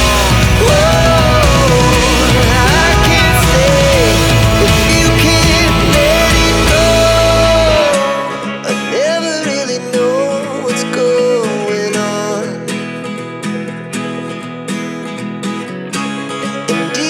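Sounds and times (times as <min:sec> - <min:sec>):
deep bass: 0:00.0 - 0:08.0
gliding melody line: 0:00.0 - 0:08.5.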